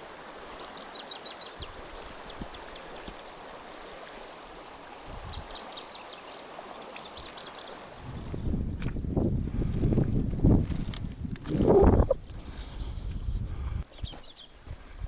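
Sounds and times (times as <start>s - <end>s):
stream water running: 0.0s - 13.5s
small birds chirping: 5.2s - 7.8s, 13.8s - 15.0s.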